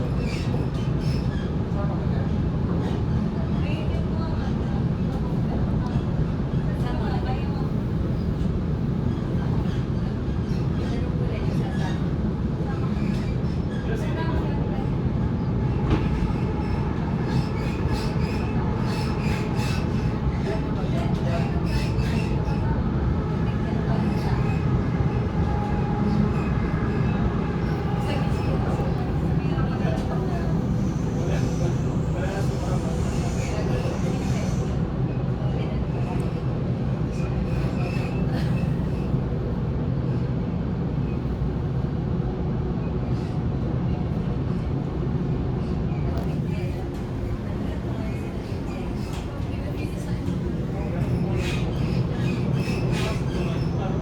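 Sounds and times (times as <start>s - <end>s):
train wheels rumbling on track: 0.0s - 54.0s
wheels squealing on rails: 15.6s - 34.8s, 37.0s - 39.5s, 45.6s - 54.0s.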